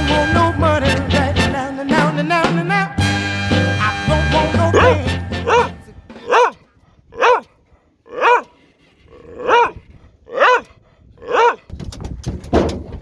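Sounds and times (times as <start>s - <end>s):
dog barking: 4.7s - 6.6s, 7.2s - 8.5s, 9.2s - 11.7s.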